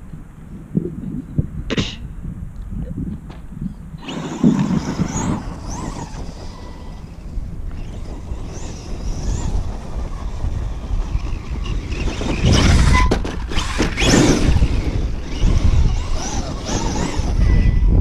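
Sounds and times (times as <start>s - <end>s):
wind on microphone: 0.0s - 18.0s
tires scrabbling on dirt: 3.2s - 18.0s
high electric motor whine: 4.0s - 18.0s.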